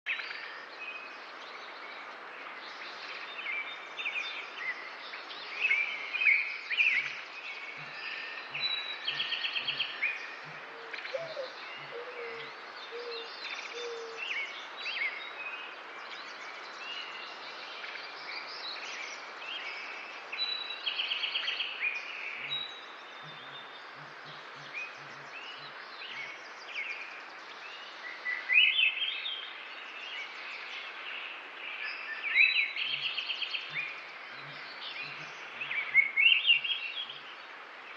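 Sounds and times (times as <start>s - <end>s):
birds singing and calling: 0.1s - 37.9s
outdoor background noise: 0.1s - 37.9s.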